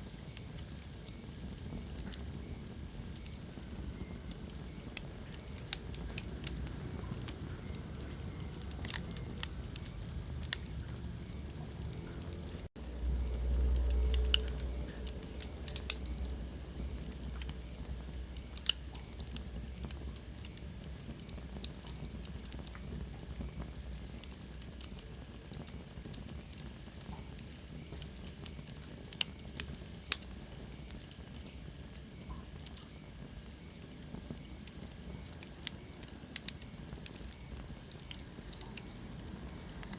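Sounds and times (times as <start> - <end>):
wood fire crackling: 0.0 - 39.9
low rumble: 6.1 - 18.6.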